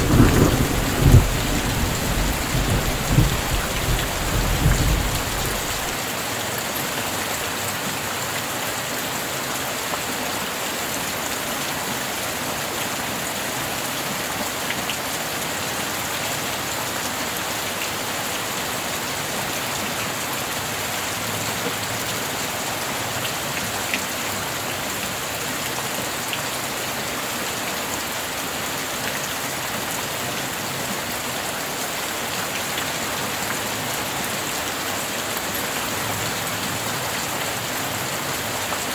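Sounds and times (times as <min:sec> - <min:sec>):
faint raindrop ticks: 0:00.0 - 0:06.0
steady rain hiss: 0:00.0 - 0:06.4.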